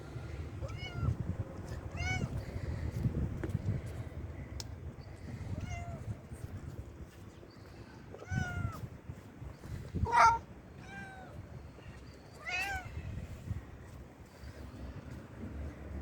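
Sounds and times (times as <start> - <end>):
cat meowing: 0.6 - 1.2, 1.9 - 2.4, 8.2 - 8.8, 10.0 - 11.4, 12.4 - 12.9.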